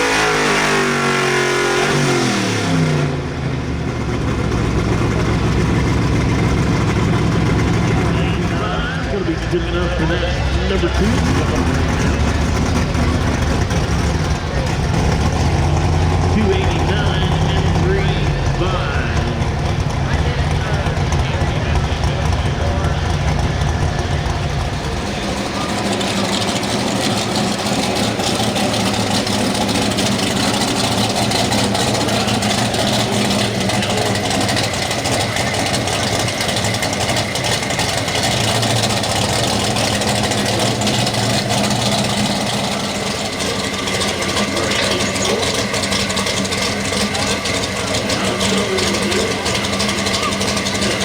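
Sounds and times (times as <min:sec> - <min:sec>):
truck engine running: 0:00.0 - 0:51.0.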